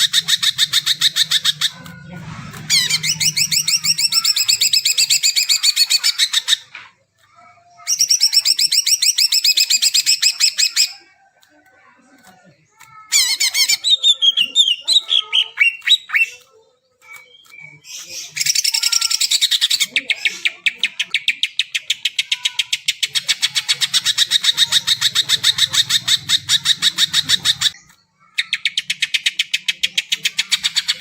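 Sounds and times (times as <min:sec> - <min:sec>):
bird singing: 0:00.0 - 0:06.7, 0:12.8 - 0:29.7.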